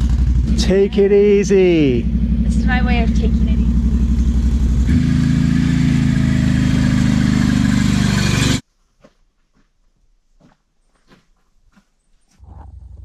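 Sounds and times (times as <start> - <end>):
small vehicle engine running: 0.0 - 8.6.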